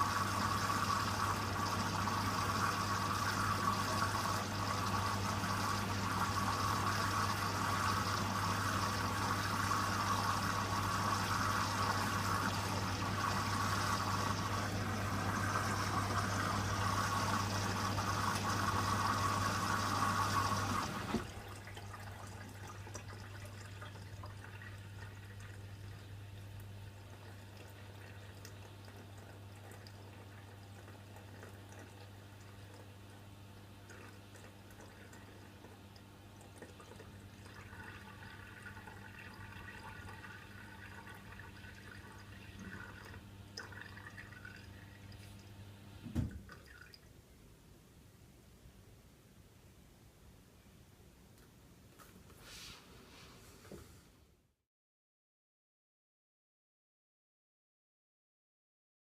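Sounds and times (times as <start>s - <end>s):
washer-dryer humming: 0.0s - 46.9s
water trickling and dripping: 20.4s - 45.6s, 46.2s - 47.1s.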